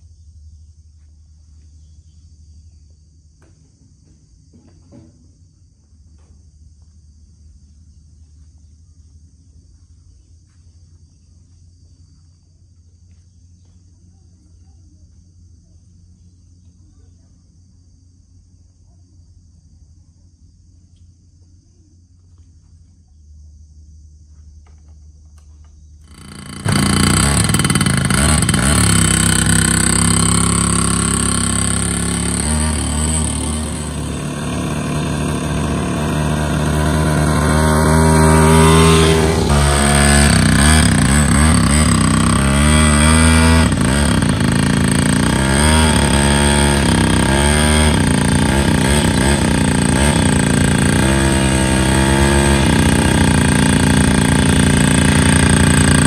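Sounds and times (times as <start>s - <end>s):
two-stroke motorbike engine revving: 26.0s - 56.0s.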